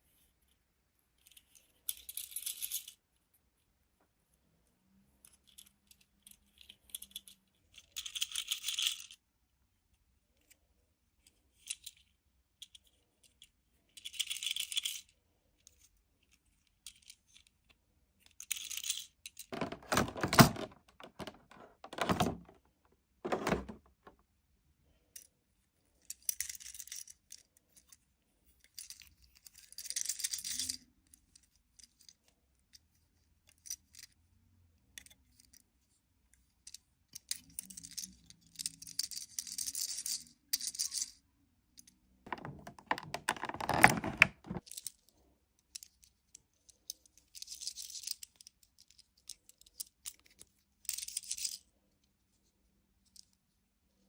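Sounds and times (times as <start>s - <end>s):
toy packaging rattling and crinkling: 18.4s - 22.6s, 23.2s - 24.1s, 42.3s - 44.9s
knocking rattles: 19.5s - 22.6s, 23.2s - 24.1s, 42.3s - 44.6s.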